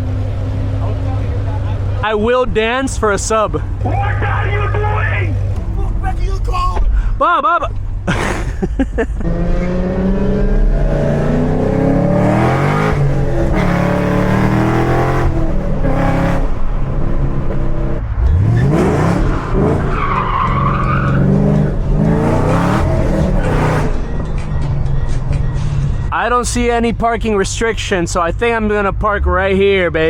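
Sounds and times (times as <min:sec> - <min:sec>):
car engine revving hard: 0:09.2 - 0:24.0
tire squeal: 0:18.2 - 0:26.0.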